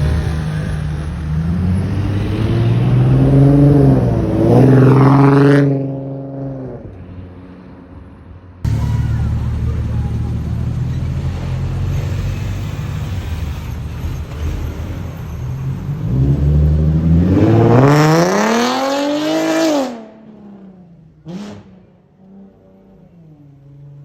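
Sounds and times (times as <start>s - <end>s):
car engine revving: 0.0s - 6.8s, 8.7s - 20.6s
car engine idling: 8.7s - 12.8s.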